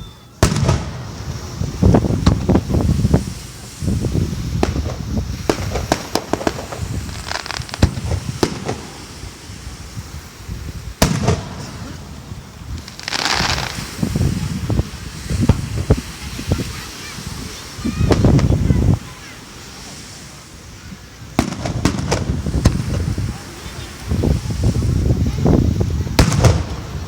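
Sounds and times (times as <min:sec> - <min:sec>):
crackling hissing firework burst: 0:00.0 - 0:27.0
firework bursts and pops: 0:00.0 - 0:27.0
loud firework bang: 0:00.4 - 0:03.3, 0:11.0 - 0:14.8, 0:21.4 - 0:23.4, 0:26.1 - 0:27.0.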